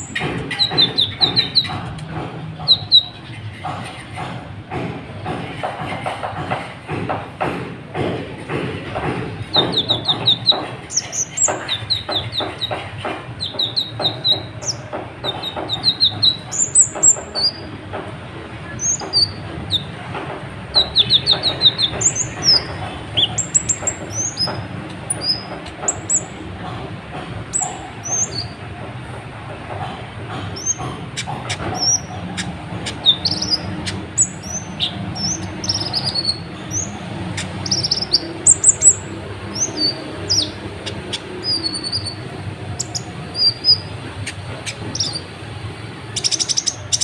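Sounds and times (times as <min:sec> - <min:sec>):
bird chirping and trilling: 0:00.0 - 0:01.8, 0:02.6 - 0:03.4, 0:13.4 - 0:17.7, 0:20.7 - 0:26.4, 0:27.5 - 0:28.6, 0:30.6 - 0:45.3, 0:46.1 - 0:47.0
clicking and noise: 0:00.0 - 0:47.0.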